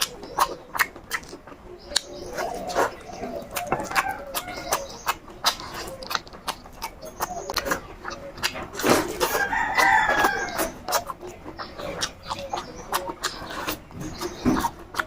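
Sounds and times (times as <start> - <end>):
person chewing food: 0.0 - 15.0
rooster crowing: 3.6 - 4.9, 9.3 - 10.8.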